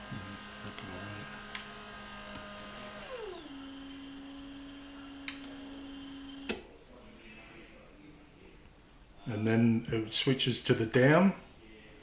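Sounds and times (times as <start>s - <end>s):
garage door opener motor humming: 0.0s - 6.6s.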